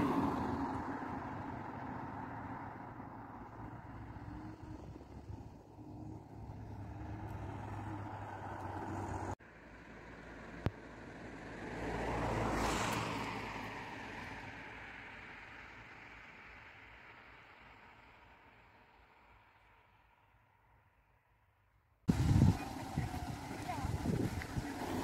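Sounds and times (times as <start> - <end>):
vehicle passing by: 0.0 - 16.8, 22.1 - 25.0
low engine hum: 0.0 - 19.4, 22.1 - 25.0.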